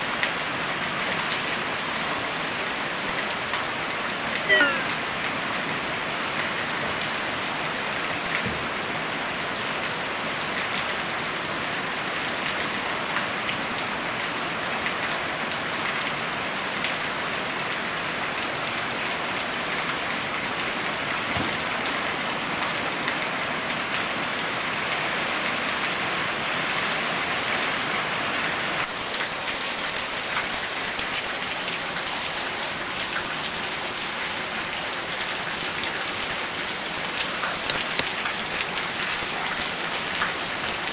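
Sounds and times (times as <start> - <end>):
heavy rain pouring: 0.0 - 40.9
water drips and taps: 8.3 - 8.7, 37.5 - 38.7.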